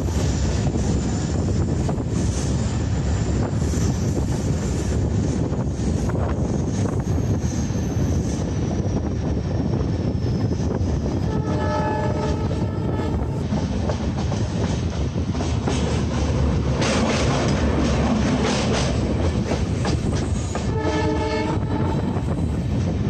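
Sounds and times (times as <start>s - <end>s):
train wheels clattering on rails: 0.0s - 23.0s
locomotive horn blast: 11.3s - 13.4s, 20.6s - 22.2s.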